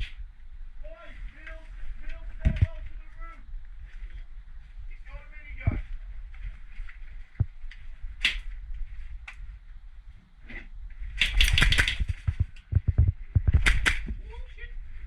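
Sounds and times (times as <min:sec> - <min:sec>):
airsoft guns firing: 0:11.2 - 0:12.4.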